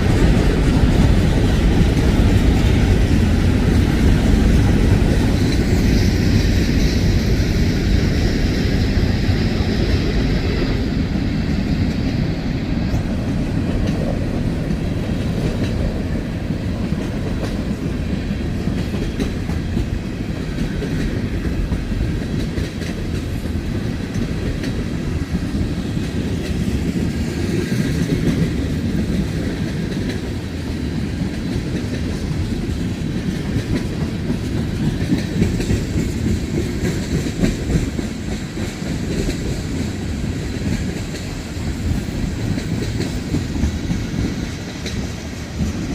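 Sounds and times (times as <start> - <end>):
freight train rumble: 0.0 - 45.9
wheels clacking over rail joints: 0.0 - 45.9.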